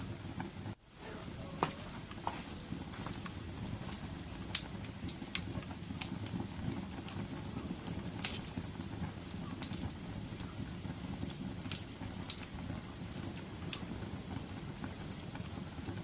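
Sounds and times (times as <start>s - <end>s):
low rumble of burning: 0.0s - 16.0s
wood fire crackling: 0.0s - 16.0s.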